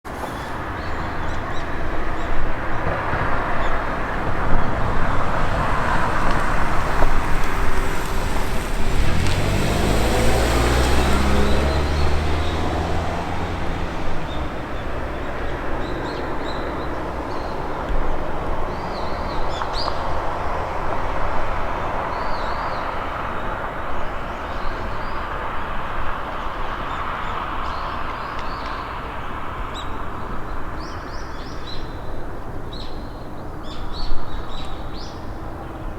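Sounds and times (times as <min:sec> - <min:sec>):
traffic noise: 0:00.1 - 0:35.9
vehicle engine hum rising: 0:04.4 - 0:16.2.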